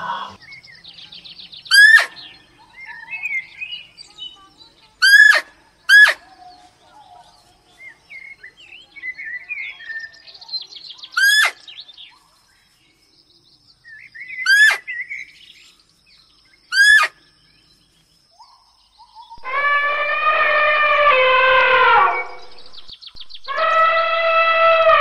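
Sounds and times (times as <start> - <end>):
birds chirping and twittering: 0.0 - 25.0
bird calls sweeping down: 19.4 - 24.8.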